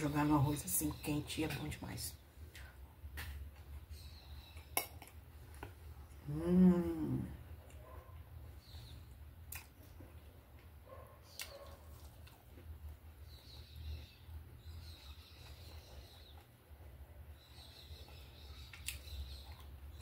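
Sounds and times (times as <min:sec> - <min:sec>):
quiet chewing and biting: 0:07.6 - 0:20.0.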